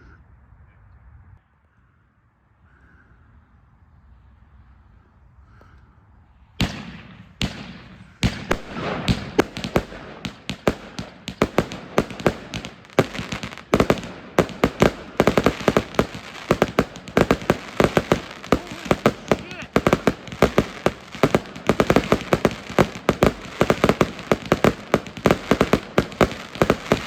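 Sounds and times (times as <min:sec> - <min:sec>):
fireworks reports: 0:06.6 - 0:27.0
rapid fireworks shots: 0:06.6 - 0:27.0.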